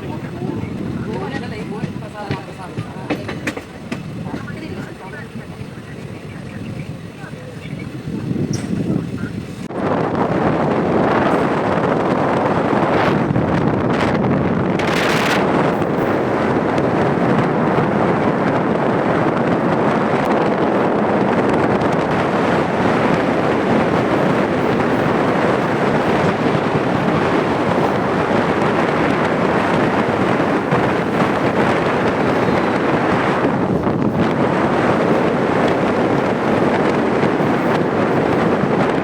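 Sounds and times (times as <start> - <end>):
electric train running: 0.0 - 39.0
wind on microphone: 0.0 - 39.0.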